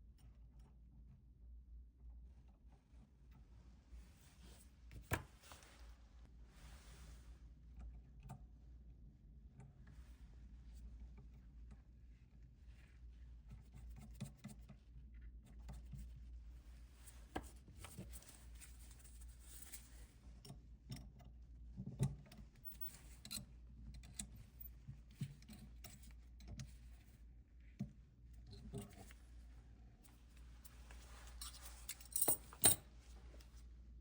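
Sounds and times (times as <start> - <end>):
low steady hum: 0.0 - 34.0
light clicks and taps of metal tools: 17.3 - 27.1, 30.1 - 32.8.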